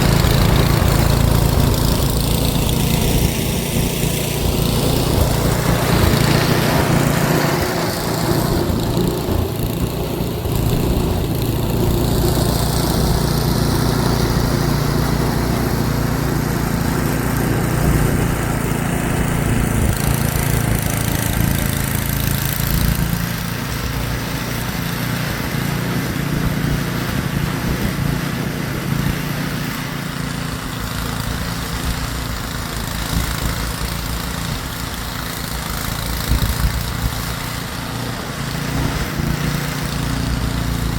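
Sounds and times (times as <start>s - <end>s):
snowblower engine running: 0.0s - 40.9s.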